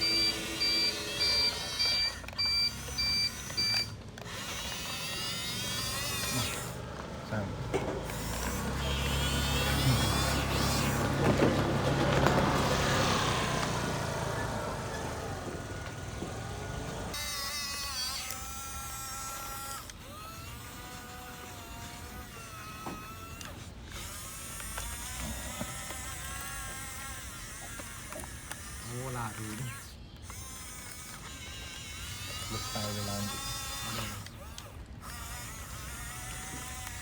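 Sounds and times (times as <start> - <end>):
toy vehicle motors whirring: 0.0 - 37.0.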